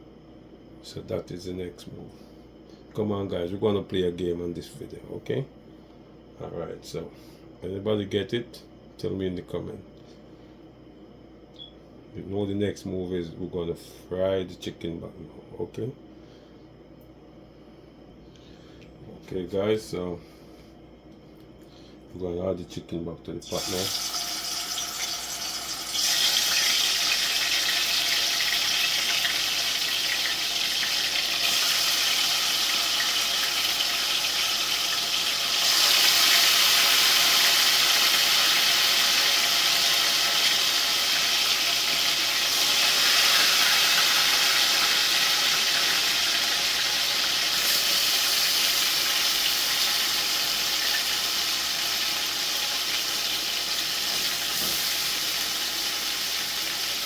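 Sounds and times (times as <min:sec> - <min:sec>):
meat frying in hot oil: 0:23.5 - 0:57.0.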